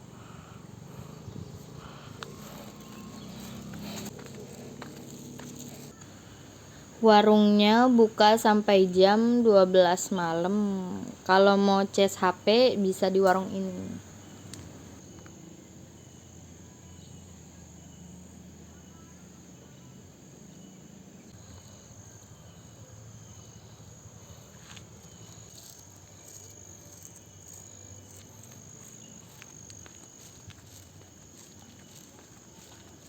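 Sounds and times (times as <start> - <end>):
insects chirping: 0.0 - 33.0
low background hum: 0.0 - 33.0.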